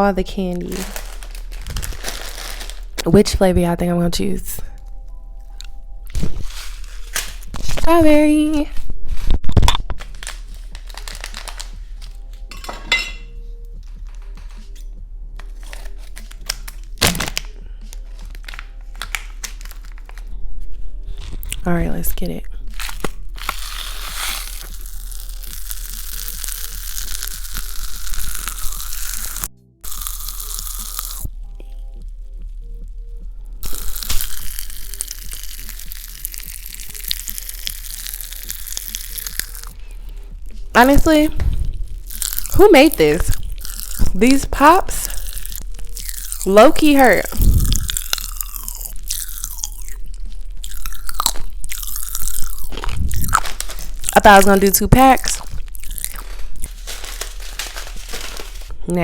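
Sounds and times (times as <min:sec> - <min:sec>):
candy packet crinkling and tearing: 0:00.0 - 0:03.3, 0:05.5 - 0:12.5, 0:13.8 - 0:14.8, 0:15.4 - 0:31.3, 0:33.6 - 0:59.0
faint background music: 0:00.0 - 0:59.0.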